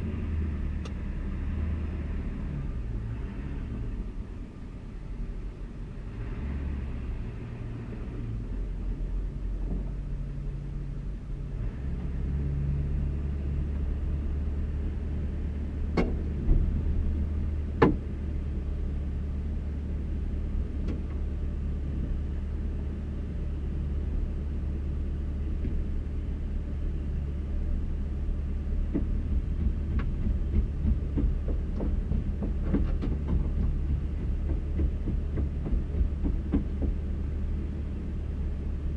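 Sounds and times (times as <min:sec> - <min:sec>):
diesel engine idling: 0:03.8 - 0:38.9
sharp knocks: 0:17.8 - 0:18.1, 0:28.9 - 0:37.1.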